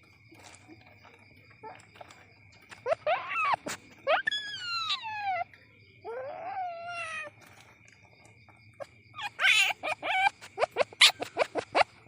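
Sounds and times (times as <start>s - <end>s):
civet squealing: 2.7s - 7.4s, 9.1s - 12.0s
civet harsh chattering calls: 9.1s - 12.0s.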